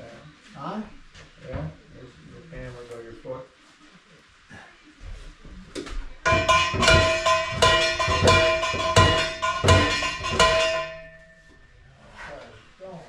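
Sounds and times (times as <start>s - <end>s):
hammer striking ringing steel: 6.3s - 11.6s.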